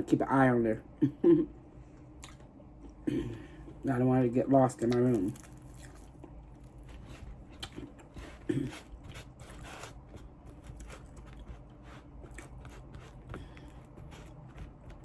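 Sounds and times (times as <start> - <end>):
crunchy chewing: 4.8 - 15.0.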